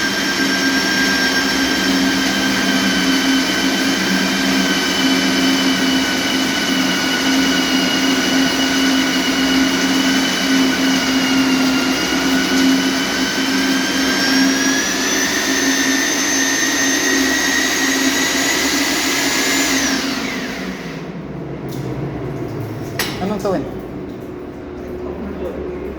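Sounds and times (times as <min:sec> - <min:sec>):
core drill motor whining: 0:00.0 - 0:21.0.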